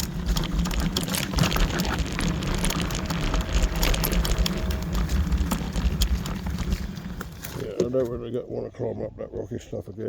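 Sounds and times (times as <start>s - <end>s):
faint electric motor whine: 0.0s - 7.8s
low rumble: 0.0s - 7.8s
tyres and frame rattling over stones: 0.0s - 8.3s.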